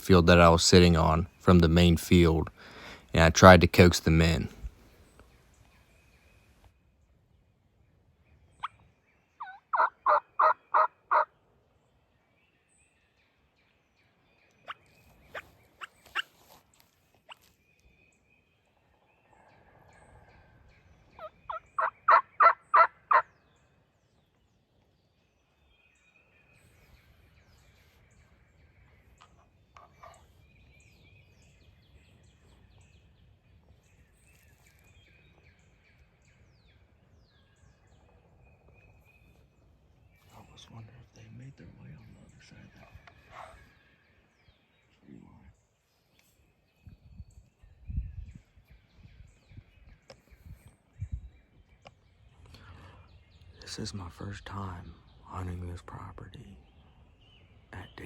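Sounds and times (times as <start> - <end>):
turkey call yelps: 9.4 - 11.3, 21.2 - 23.2.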